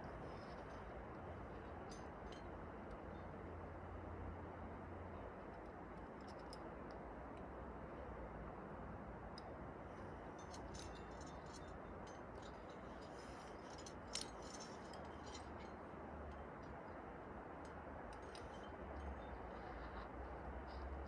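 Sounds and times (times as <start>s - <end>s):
metallic clinks of climbing gear: 0.0s - 3.5s, 5.4s - 7.5s, 9.3s - 17.0s, 17.6s - 21.0s.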